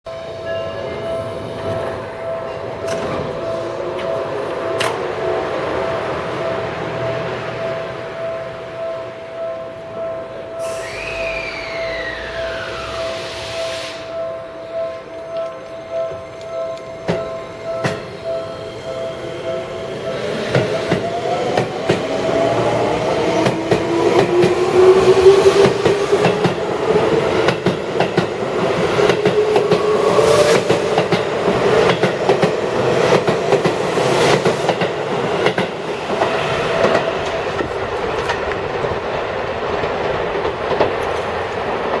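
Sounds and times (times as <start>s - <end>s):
wheels clacking over rail joints: 0.8s - 7.6s, 19.6s - 42.0s
electric train motor whine: 10.6s - 14.2s.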